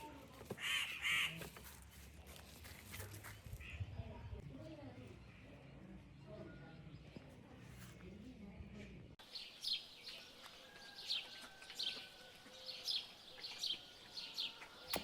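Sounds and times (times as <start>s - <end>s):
low background murmur: 0.0s - 9.3s
bird chirping: 9.2s - 15.0s.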